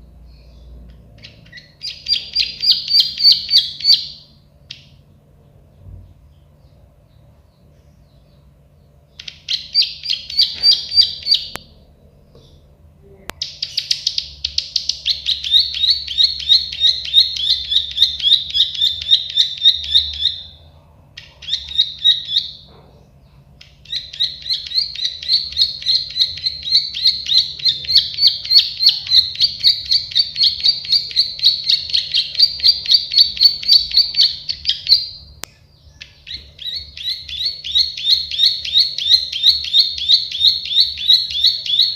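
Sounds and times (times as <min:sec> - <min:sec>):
bird singing rapid high notes: 0:00.4 - 0:05.0, 0:09.1 - 0:11.6, 0:13.4 - 0:20.6, 0:23.7 - 0:41.9.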